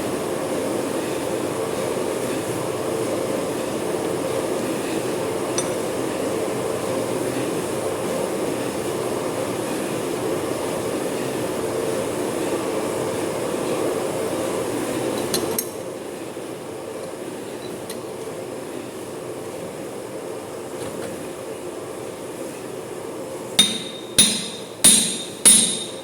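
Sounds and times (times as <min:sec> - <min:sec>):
metal lathe running: 0:23.6 - 0:26.0.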